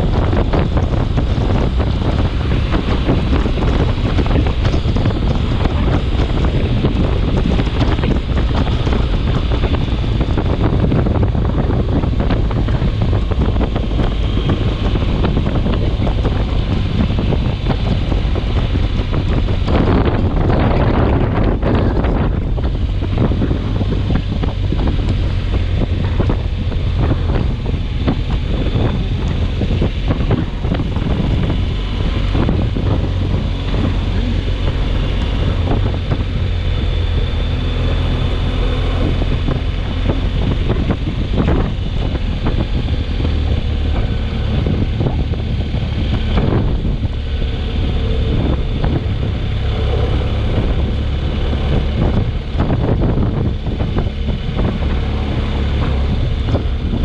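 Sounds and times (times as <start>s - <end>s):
storm wind buffeting microphone: 0.0s - 57.0s.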